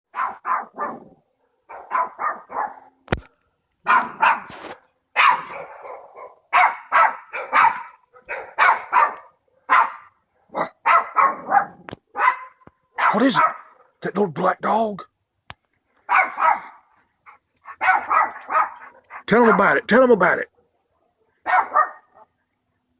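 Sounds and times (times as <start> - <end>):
dog barking: 0.1 - 3.0, 3.8 - 14.0, 16.1 - 19.8, 20.5 - 22.4
sharp click: 3.1 - 3.4.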